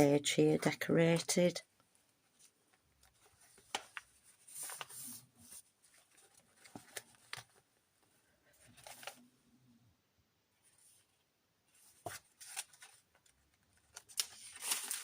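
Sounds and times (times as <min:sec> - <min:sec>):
paper pages rustling: 0:02.3 - 0:07.7, 0:08.5 - 0:09.3, 0:11.7 - 0:15.0.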